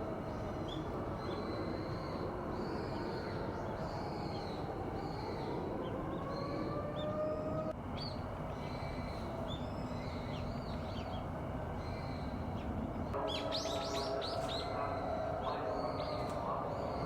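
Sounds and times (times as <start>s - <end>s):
small birds chirping: 7.9s - 17.0s.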